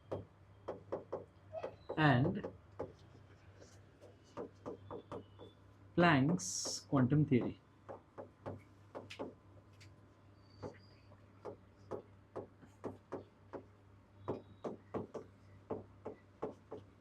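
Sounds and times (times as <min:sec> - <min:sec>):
writing taps on a board: 0:01.9 - 0:03.0, 0:04.3 - 0:05.5, 0:06.3 - 0:09.4, 0:11.4 - 0:13.7, 0:14.3 - 0:16.9.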